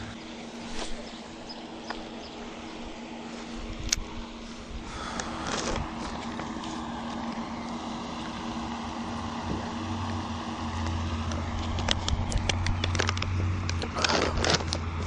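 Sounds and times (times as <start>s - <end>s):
low motor hum: 0.0s - 15.0s
sharp clicks: 10.8s - 14.9s.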